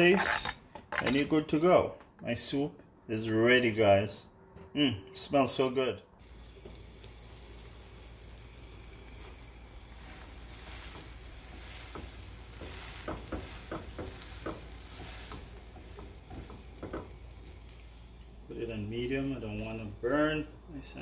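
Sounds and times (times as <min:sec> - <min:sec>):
sandwiches sizzling in a frying pan: 0:06.2 - 0:21.0
spatula tapping on sandwiches: 0:10.6 - 0:17.7.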